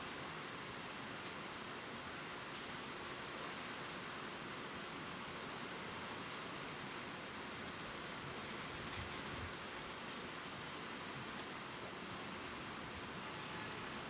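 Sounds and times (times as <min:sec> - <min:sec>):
rain falling on leaves: 0:00.0 - 0:14.0.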